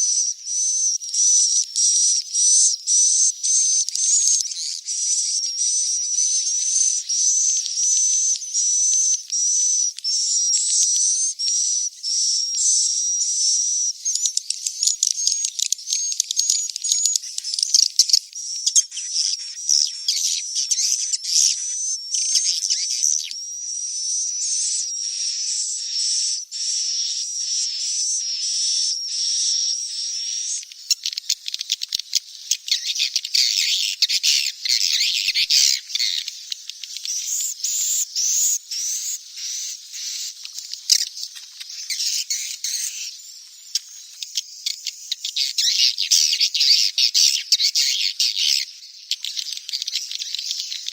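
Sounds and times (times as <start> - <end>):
chatter of clicks and chirps: 0.0 - 50.9
chicks hissing buzzy calls: 24.4 - 50.9
high hissing buzz of chick: 32.2 - 44.8.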